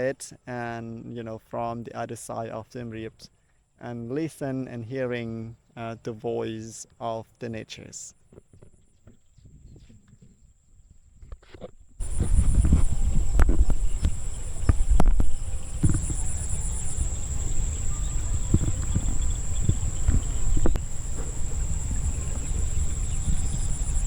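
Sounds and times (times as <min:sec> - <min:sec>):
insects trilling: 0:12.0 - 0:24.0
loud low rumble: 0:12.0 - 0:24.0.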